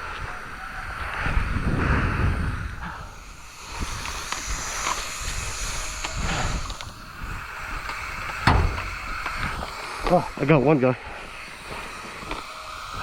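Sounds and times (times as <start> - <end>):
wind on microphone: 0.0 - 9.7
microphone handling rumble: 8.3 - 9.2.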